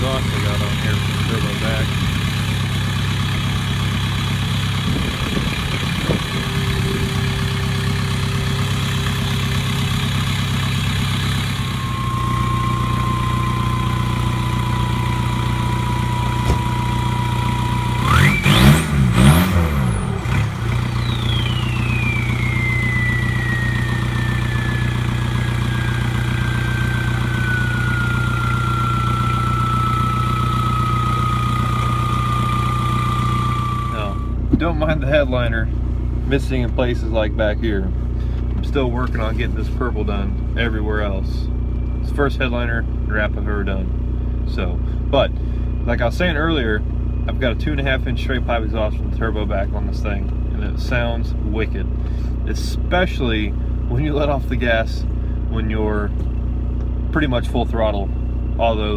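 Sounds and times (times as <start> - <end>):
diesel engine idling: 0.0 - 58.9
thin high whistle: 11.5 - 18.6, 20.9 - 34.5.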